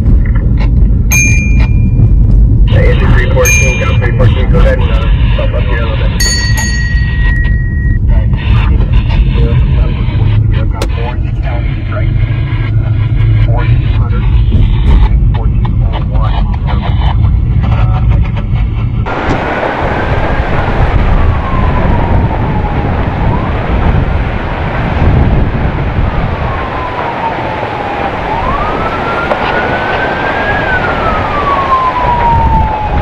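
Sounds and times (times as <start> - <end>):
low rumble: 0.0 - 33.0
emergency vehicle siren wailing: 1.8 - 6.3, 19.0 - 33.0
loud rushing noise: 18.8 - 33.0.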